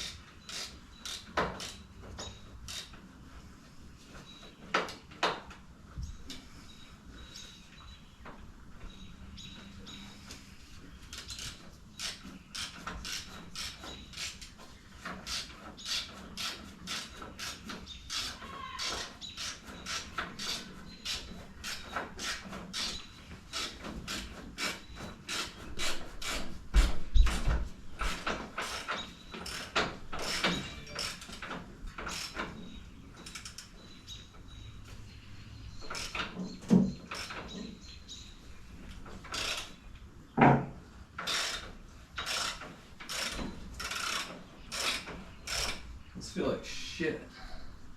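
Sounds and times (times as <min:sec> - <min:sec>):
tools clicking and knocking on metal: 0:00.0 - 0:03.0, 0:11.2 - 0:33.9, 0:35.8 - 0:37.8, 0:38.9 - 0:39.8, 0:40.4 - 0:45.9.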